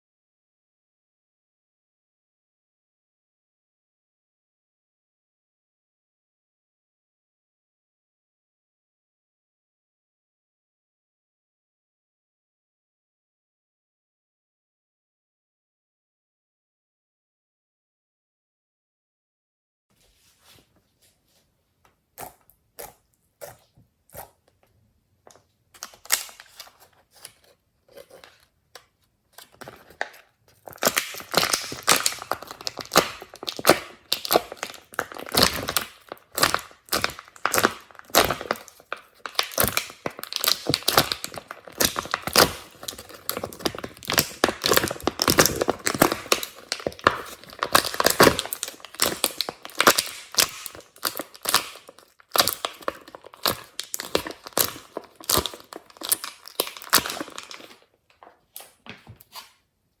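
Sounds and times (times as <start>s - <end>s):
slime crackling and popping: 25.8s - 26.8s, 29.4s - 57.8s.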